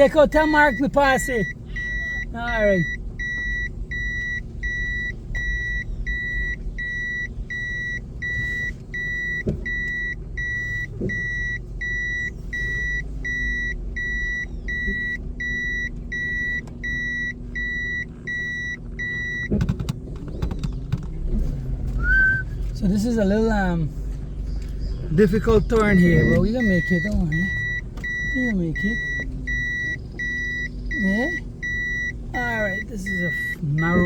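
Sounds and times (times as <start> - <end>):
car engine idling: 0.0 - 34.0
reversing beeper: 25.8 - 34.0.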